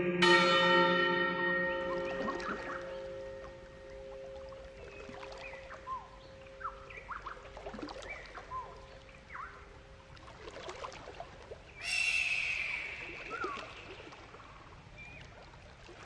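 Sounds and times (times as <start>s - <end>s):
birds chirping: 0.0s - 10.2s, 11.7s - 15.4s
steady low hum: 0.0s - 10.6s
held high-pitched bird call: 1.8s - 3.5s, 11.8s - 14.0s.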